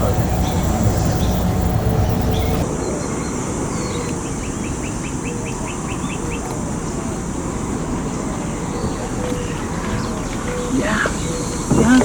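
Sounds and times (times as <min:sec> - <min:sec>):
low background rumble: 0:00.0 - 0:02.6.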